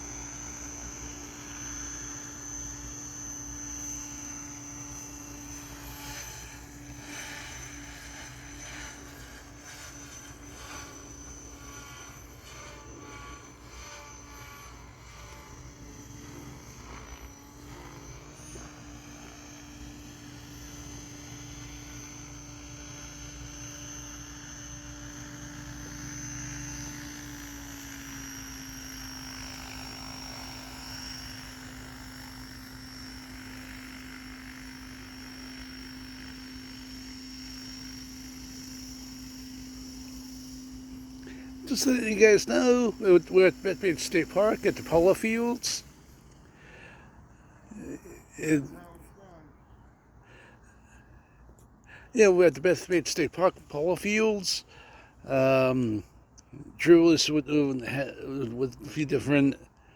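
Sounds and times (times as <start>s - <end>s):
model helicopter rotor hum and whine: 0.0s - 59.9s.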